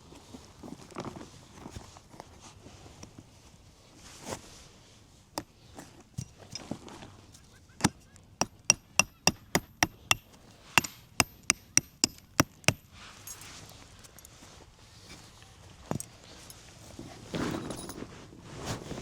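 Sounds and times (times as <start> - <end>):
hammer blows on metal: 7.8 - 13.0.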